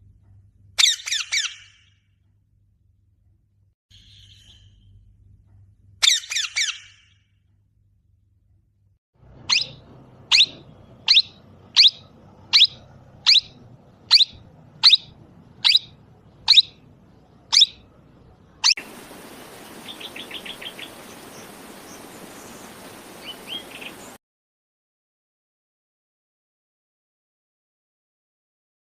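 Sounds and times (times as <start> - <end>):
parrot calling: 9.4 - 18.0, 18.6 - 24.2
steady hiss: 18.7 - 24.2.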